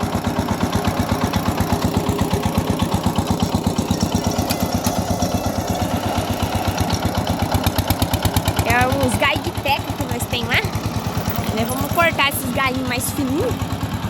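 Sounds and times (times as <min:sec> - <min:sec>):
diesel engine puttering: 0:00.0 - 0:14.0.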